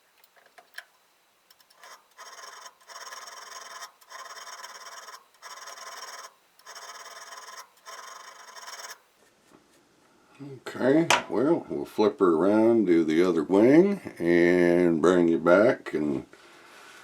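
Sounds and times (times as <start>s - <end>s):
metal rasping on sharpening plate: 1.7s - 9.0s.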